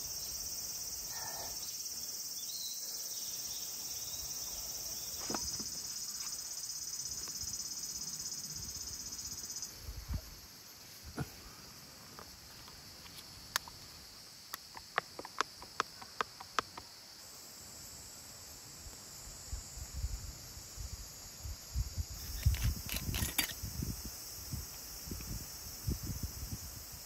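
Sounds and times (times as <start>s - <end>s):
insects chirring: 0.0s - 27.0s
rustling and knocking of objects: 5.2s - 6.3s.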